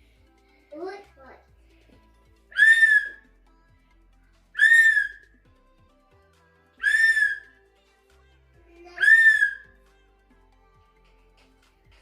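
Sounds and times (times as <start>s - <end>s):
shrill whistle-like tone: 2.5s - 3.3s, 4.6s - 5.4s, 6.8s - 7.6s, 9.0s - 9.7s.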